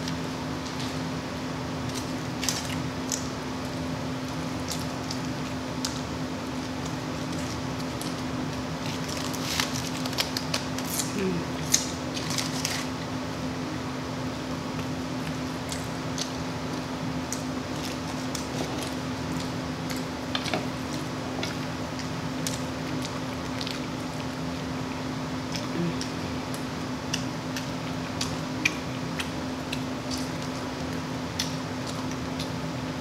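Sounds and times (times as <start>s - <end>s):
steady low hum: 0.0s - 33.0s
chewing mouth smacks: 25.5s - 30.7s.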